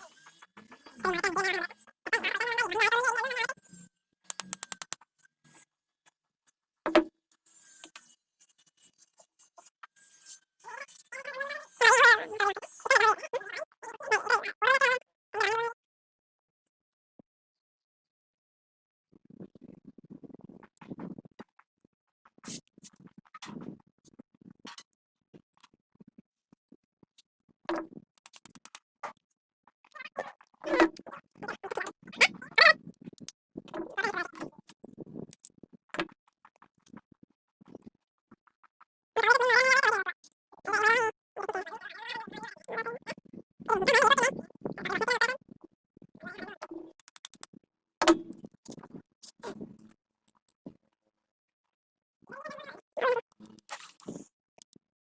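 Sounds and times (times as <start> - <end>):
small hard objects clicking: 4.3 - 5.0, 47.0 - 47.5.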